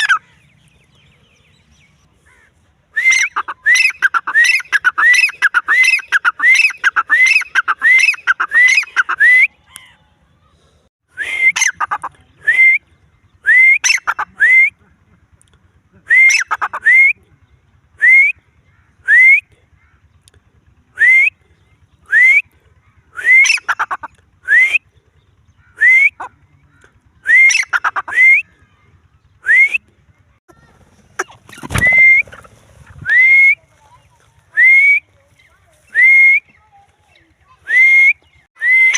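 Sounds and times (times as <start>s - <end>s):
bird rising whistled calls: 3.0s - 9.8s, 27.2s - 28.5s, 31.6s - 32.4s, 37.6s - 38.9s.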